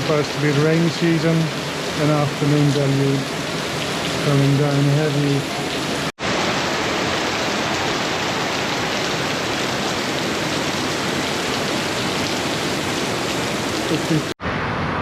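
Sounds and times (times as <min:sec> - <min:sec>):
heavy rain falling: 0:00.0 - 0:14.4.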